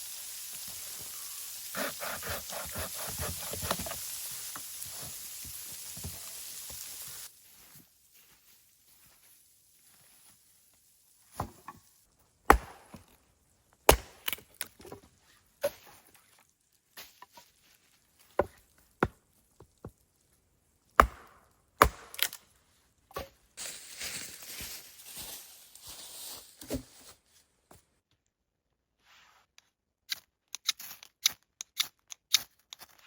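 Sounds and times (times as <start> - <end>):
axe chopping wood: 1.8 - 4.0, 12.5 - 13.0, 13.9 - 14.4, 21.0 - 22.4.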